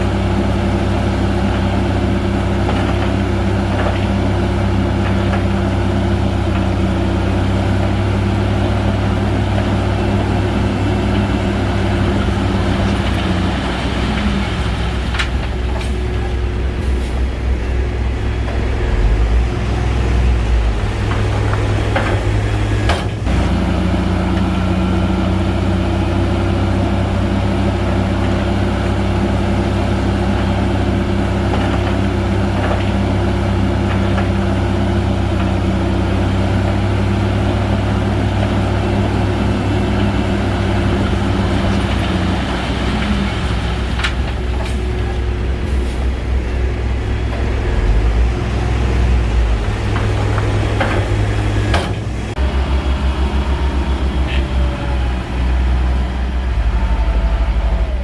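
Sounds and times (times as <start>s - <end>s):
bulldozer diesel engine running: 0.0s - 58.0s
deep low rumble: 12.0s - 23.4s, 44.0s - 58.0s.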